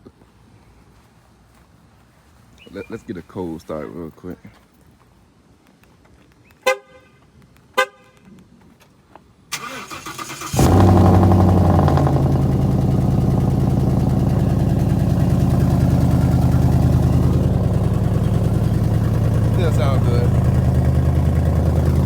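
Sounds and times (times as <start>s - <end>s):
car horn chirps: 6.6s - 7.2s
car engine idling: 9.6s - 22.0s.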